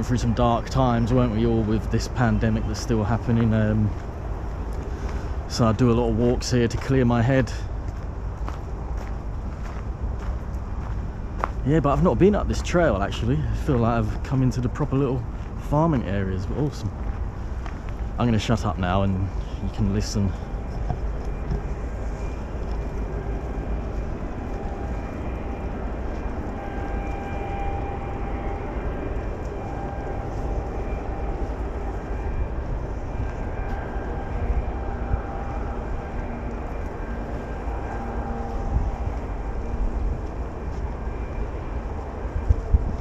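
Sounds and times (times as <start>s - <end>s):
steady low rumble: 0.0s - 43.0s
faint wavering tones: 10.4s - 43.0s.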